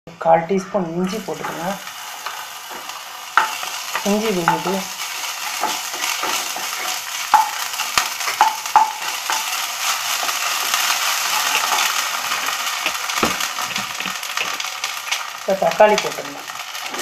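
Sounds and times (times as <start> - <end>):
vegetables sizzling in oil: 0.6 - 17.0
spatula stirring in pan: 1.1 - 15.3
spatula knocking against pan: 7.3 - 7.6, 8.3 - 9.4.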